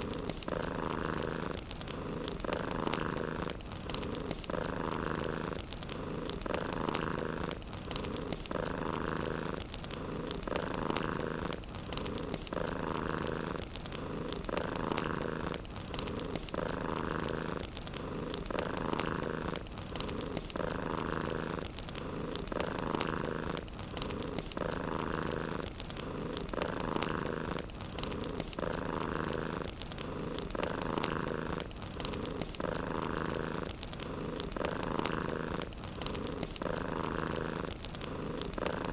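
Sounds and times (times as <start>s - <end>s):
cat purring: 0.0s - 38.9s
wood fire crackling: 0.0s - 38.9s.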